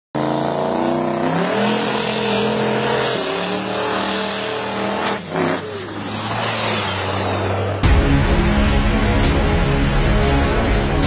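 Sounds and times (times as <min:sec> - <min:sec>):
truck engine at high revs: 0:00.1 - 0:11.0
spinning tyres hissing: 0:01.3 - 0:07.8.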